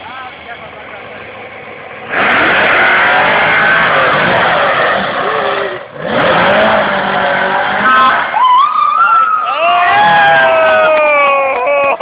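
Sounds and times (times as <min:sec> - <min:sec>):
car revving hard: 0:00.8 - 0:08.4.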